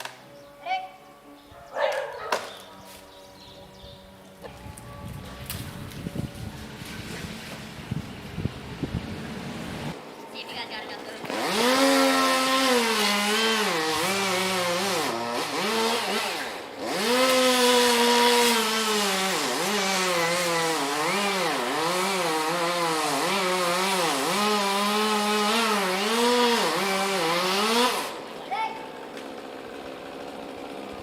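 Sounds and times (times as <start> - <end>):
chainsaw cutting at high revs: 11.2 - 31.0.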